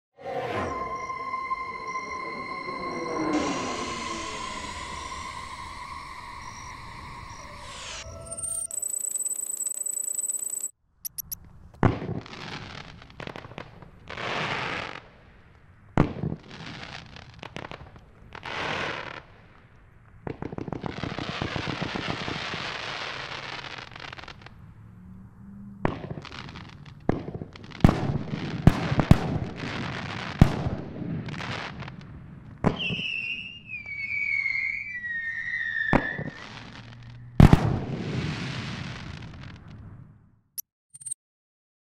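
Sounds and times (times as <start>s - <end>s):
falling warbling whistle: 0.2s - 11.3s, 32.8s - 36.7s
fireworks crackle: 11.6s - 24.6s, 25.9s - 39.9s
fireworks launch thumps and bangs: 25.9s - 33.1s, 35.9s - 39.8s.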